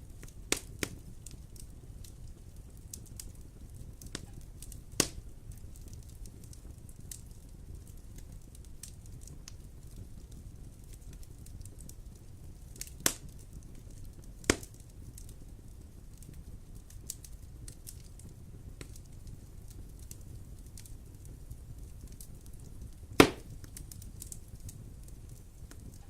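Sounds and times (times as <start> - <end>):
wood fire burning: 0.0 - 26.0
loud sharp fire pops: 0.2 - 1.4, 4.0 - 6.1, 12.8 - 15.3, 16.1 - 26.0.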